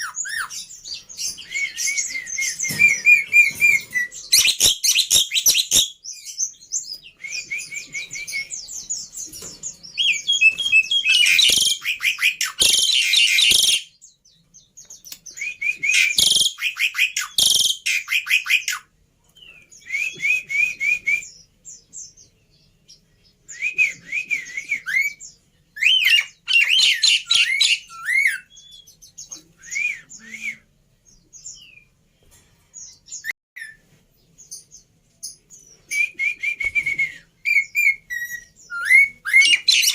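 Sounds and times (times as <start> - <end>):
bird chirping and trilling: 0.0 - 18.8, 24.7 - 31.9, 37.4 - 39.9.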